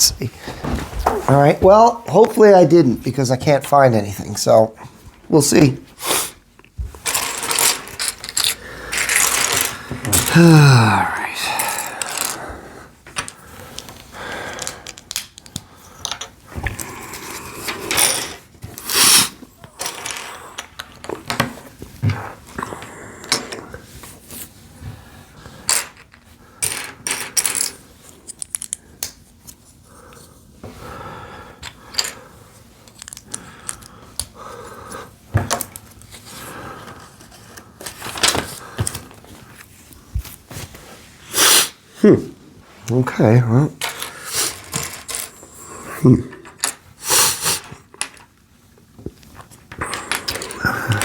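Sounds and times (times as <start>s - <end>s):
rustling pieces: 6.9s - 12.4s.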